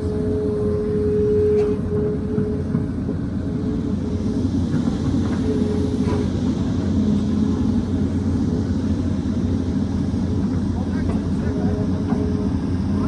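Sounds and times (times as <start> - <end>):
whining tone: 0.0 - 8.3
excavator diesel engine running: 0.0 - 13.0.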